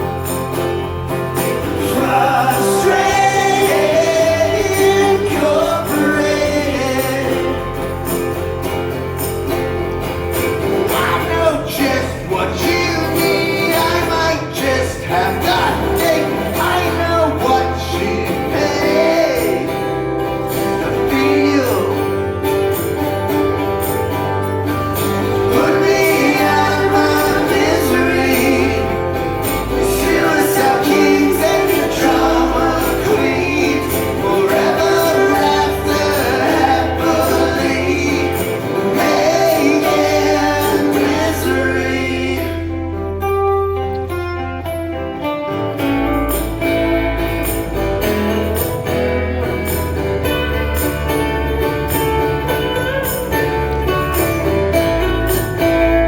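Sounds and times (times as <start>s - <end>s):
strummed acoustic guitar: 0.0s - 56.0s
person singing lead vocal: 1.7s - 8.1s, 10.8s - 22.4s, 25.4s - 43.3s.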